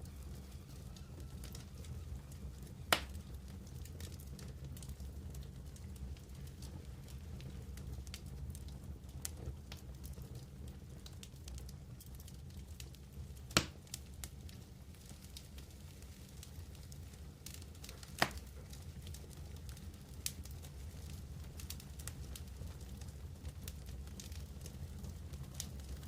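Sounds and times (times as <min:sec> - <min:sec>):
campfire crackling: 0:00.0 - 0:26.0
low steady rumble: 0:00.0 - 0:26.0
sharp fire pops: 0:02.9 - 0:03.3, 0:13.5 - 0:14.0, 0:17.8 - 0:18.7.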